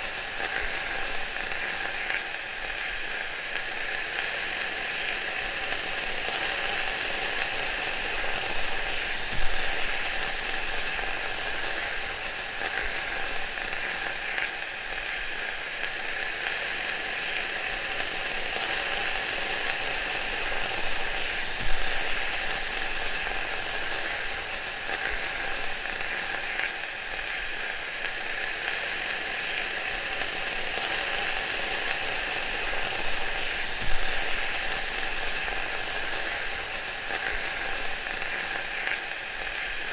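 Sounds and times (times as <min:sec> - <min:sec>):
food sizzling: 0:00.0 - 0:39.9
loud frying pops: 0:00.3 - 0:39.9.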